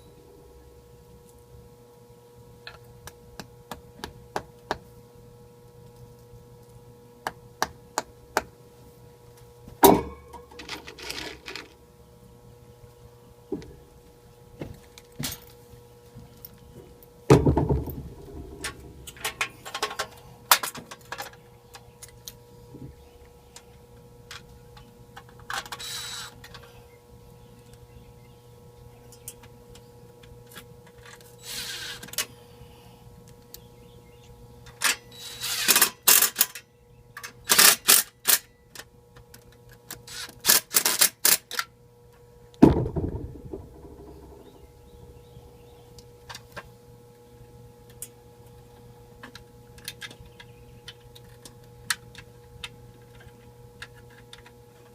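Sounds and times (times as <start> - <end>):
electrical hum: 0.0 - 54.9
heavy thump: 42.6 - 44.5.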